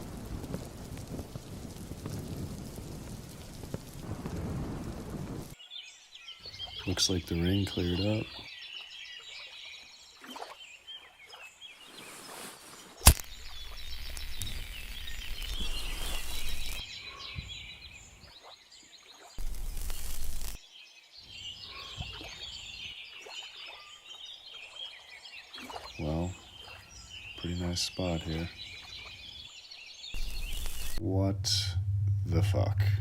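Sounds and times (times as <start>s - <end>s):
birds chirping: 5.6s - 33.0s
rushing noise with low rumble: 30.2s - 33.0s.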